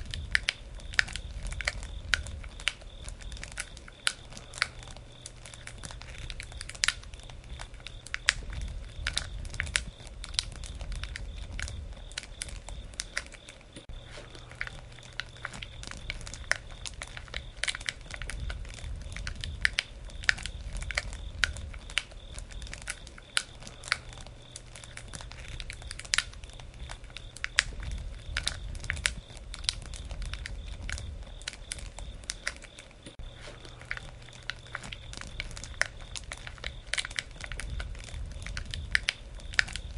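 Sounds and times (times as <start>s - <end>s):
low fire rumble: 0.0s - 39.9s
wood fire pops and crackles: 0.0s - 39.9s.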